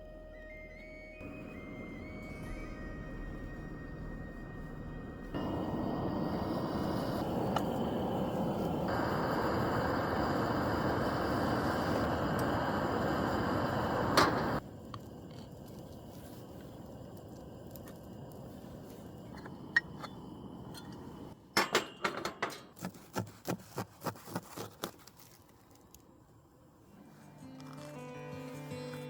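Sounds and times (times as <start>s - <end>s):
steady rushing noise: 3.3s - 14.8s.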